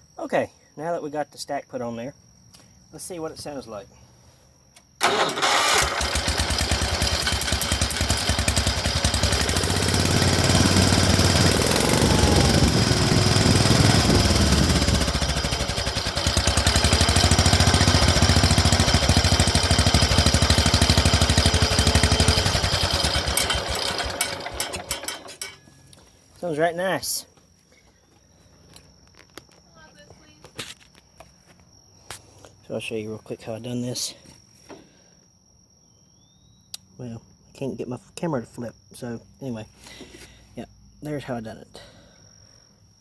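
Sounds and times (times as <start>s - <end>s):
small tractor engine running: 5.0s - 25.6s.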